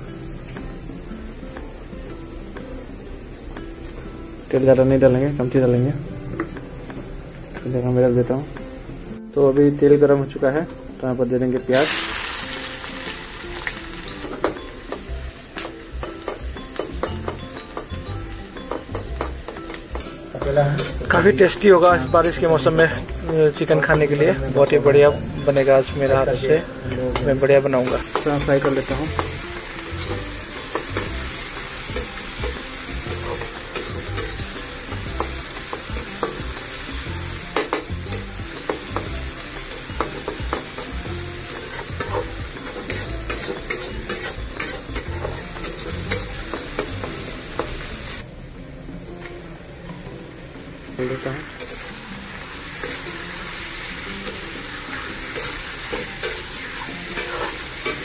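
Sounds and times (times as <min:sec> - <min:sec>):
food sizzling in hot oil: 0:00.0 - 0:58.0
spatula scraping a pan: 0:38.7 - 0:46.9, 0:51.6 - 0:52.1, 0:54.2 - 0:58.0.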